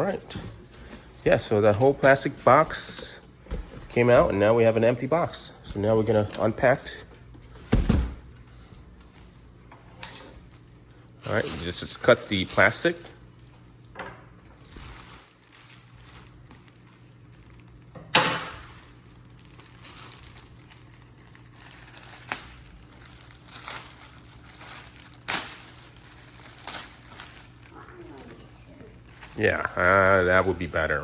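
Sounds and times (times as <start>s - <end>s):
plastic wrap crinkling: 10.3s - 31.0s.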